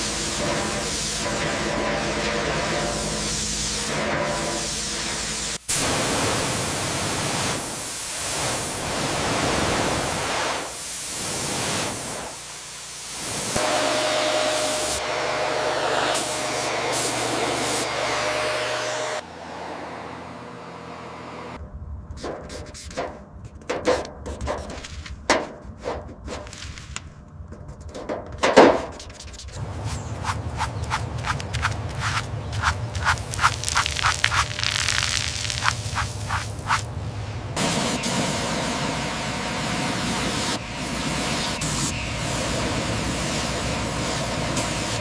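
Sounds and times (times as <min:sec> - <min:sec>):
hissing spray: 0:00.0 - 0:19.2, 0:29.6 - 0:45.0.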